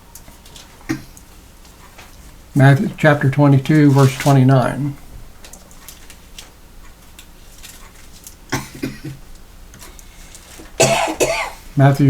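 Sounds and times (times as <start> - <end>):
light rustling: 3.7 - 8.4.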